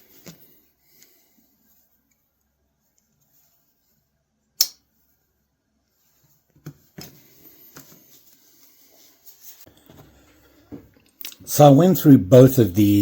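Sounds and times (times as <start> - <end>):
sharp click: 4.6 - 4.8.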